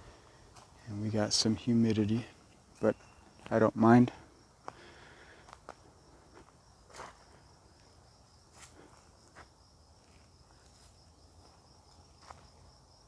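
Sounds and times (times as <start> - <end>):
footsteps on dirt path: 0.0 - 7.4.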